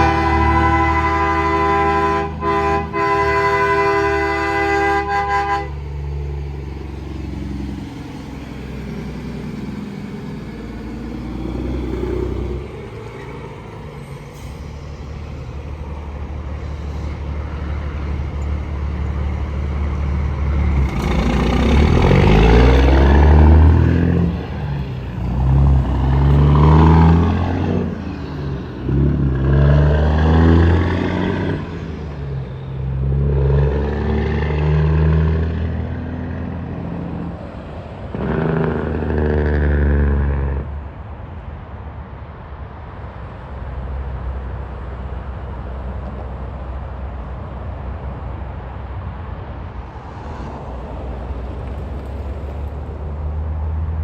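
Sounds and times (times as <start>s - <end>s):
horn blast: 0.0s - 6.0s
diesel truck engine shifting gears: 0.0s - 41.1s, 43.7s - 54.0s
highway traffic passing: 0.0s - 54.0s
tyres hissing: 6.9s - 18.4s.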